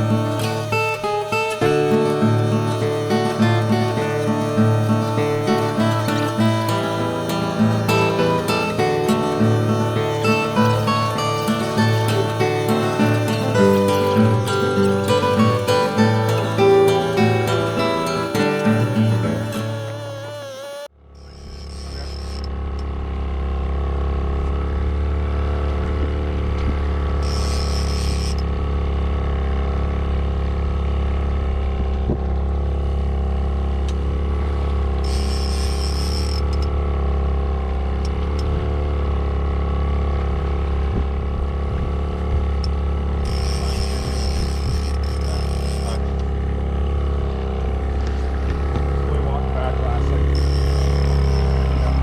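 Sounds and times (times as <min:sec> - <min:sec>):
bursts of hiss: 0:00.0 - 0:22.1
boat motor droning: 0:00.0 - 0:52.0.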